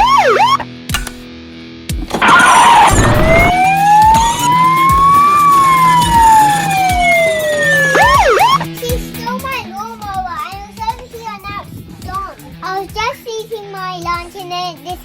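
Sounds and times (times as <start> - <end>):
police siren wail: 0.0 - 0.6, 2.1 - 8.7.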